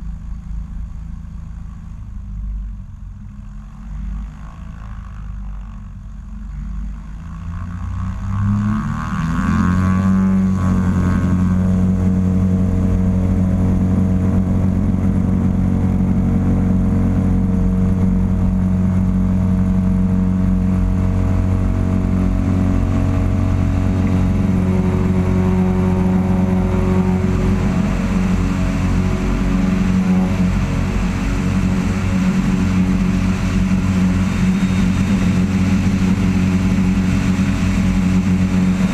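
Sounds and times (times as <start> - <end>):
airplane engine and propeller: 0.0 - 38.9.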